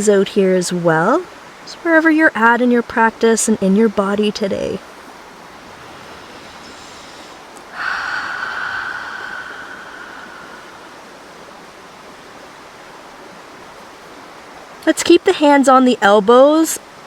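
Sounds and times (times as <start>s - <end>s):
river flowing: 0.0s - 2.6s, 3.2s - 16.1s
person breathing in faintly: 5.8s - 11.4s
person exhaling through mouth: 6.1s - 11.3s.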